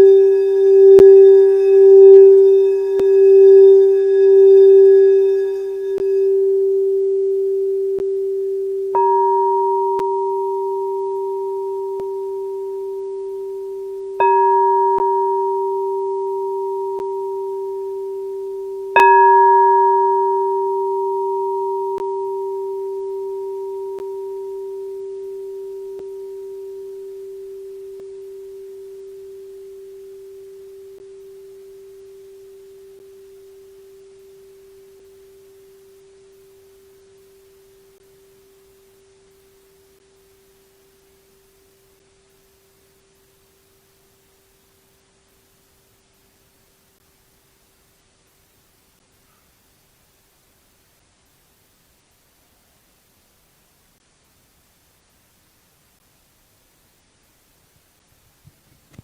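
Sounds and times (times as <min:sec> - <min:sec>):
higher singing bowl struck: 0:00.0 - 0:38.7
low singing bowl ringing: 0:00.0 - 0:44.0.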